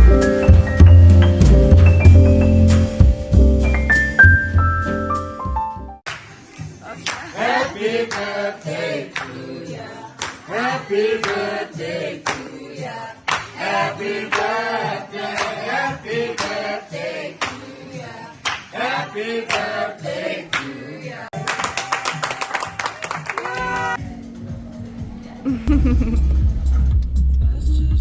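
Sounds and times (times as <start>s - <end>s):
handclaps: 6.1s - 7.3s, 10.2s - 10.4s, 13.3s - 13.6s, 16.4s - 16.6s, 17.4s - 17.6s, 18.4s - 18.7s, 21.4s - 24.0s
group singing: 6.6s - 21.3s.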